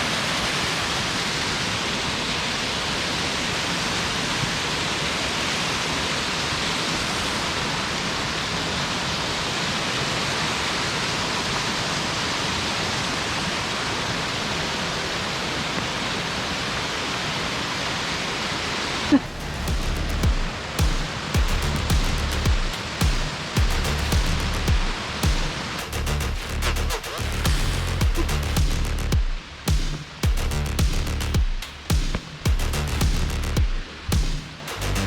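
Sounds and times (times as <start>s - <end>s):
waterfall rushing: 0.0s - 35.0s
music: 19.2s - 35.0s.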